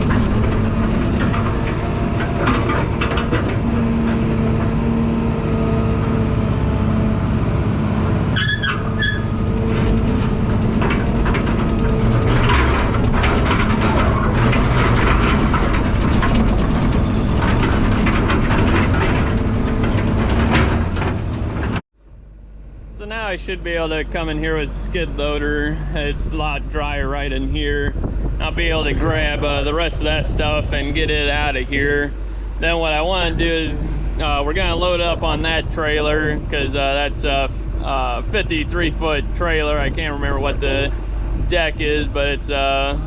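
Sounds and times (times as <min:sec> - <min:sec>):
metal clanking and rattling: 0:00.0 - 0:06.6, 0:08.2 - 0:21.8
diesel engine running: 0:00.0 - 0:43.0
short squeal: 0:08.3 - 0:09.4.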